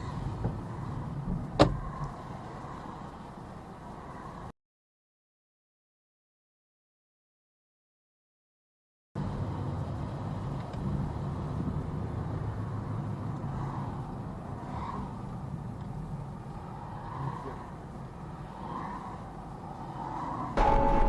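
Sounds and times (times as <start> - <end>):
car engine and road noise: 0.0 - 4.6, 9.2 - 21.0.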